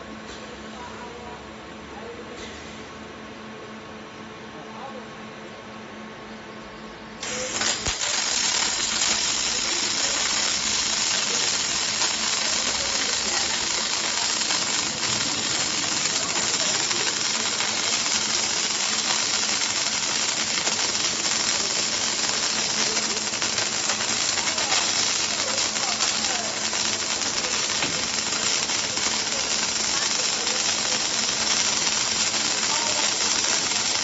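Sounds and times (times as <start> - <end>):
welding arc hissing: 7.2 - 34.0.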